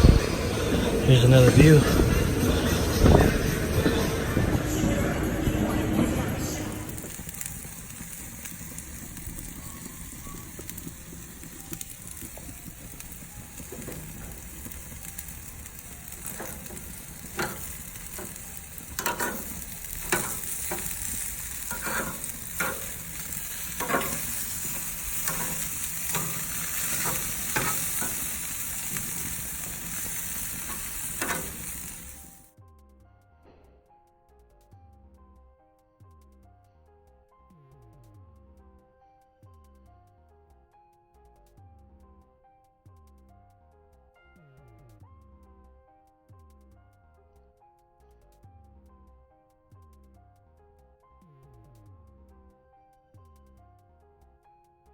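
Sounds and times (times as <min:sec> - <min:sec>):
stepmill machine hissing: 0:00.0 - 0:32.5.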